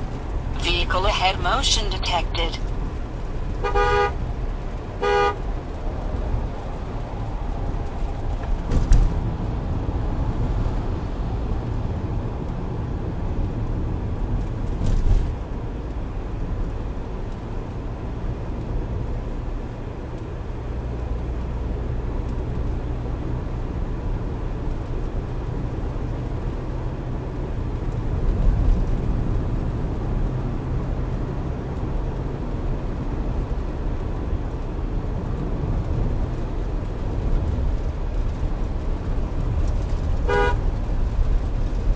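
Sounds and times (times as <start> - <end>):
car road and engine rumble: 0.0 - 41.9.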